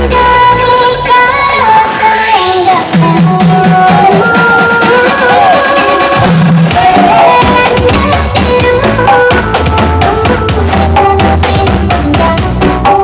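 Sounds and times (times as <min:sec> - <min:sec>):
heavy bass beat: 0:02.6 - 0:13.0
music with hand drums: 0:02.9 - 0:13.0
gliding melodic lead line: 0:03.2 - 0:13.0.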